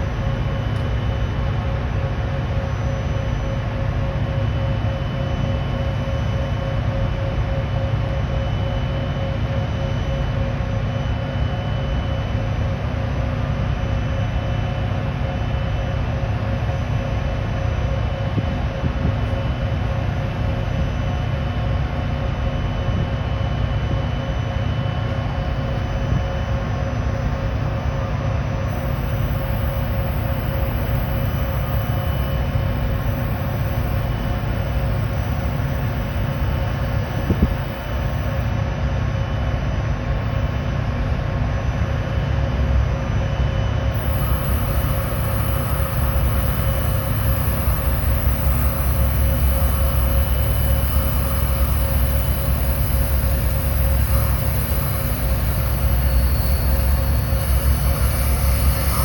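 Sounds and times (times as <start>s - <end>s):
train rumbling: 0.0s - 4.5s, 24.0s - 59.0s
locomotive hum: 0.0s - 11.7s, 12.3s - 42.9s, 43.6s - 59.0s.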